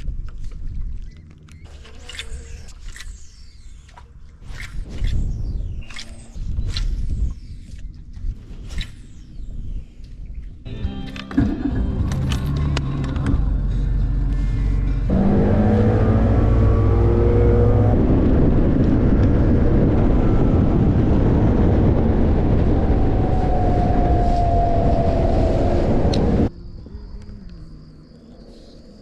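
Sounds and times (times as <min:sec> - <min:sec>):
boat motor running: 0:11.2 - 0:20.4.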